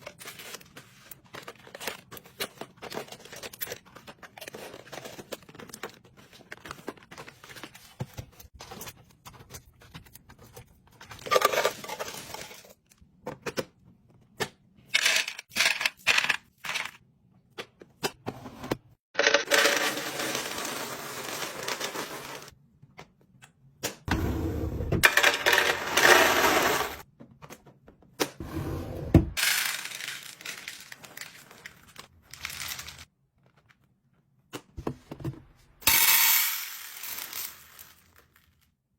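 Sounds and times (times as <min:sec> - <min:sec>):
items clattering into containers: 0:00.0 - 0:13.6, 0:19.2 - 0:22.5, 0:25.0 - 0:27.0, 0:29.3 - 0:33.1
plastic wrappers crinkling: 0:29.4 - 0:33.1.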